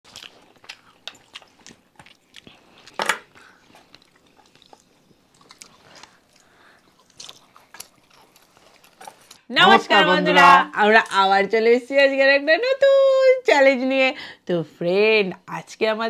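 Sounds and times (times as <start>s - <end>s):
food chewing crunches: 0.0s - 9.5s.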